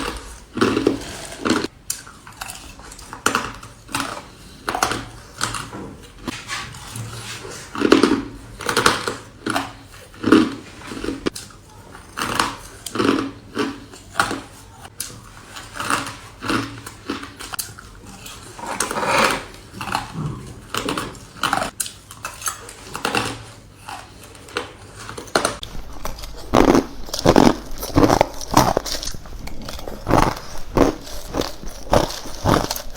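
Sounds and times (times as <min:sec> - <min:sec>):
ice crunching between teeth: 0:07.7 - 0:32.9.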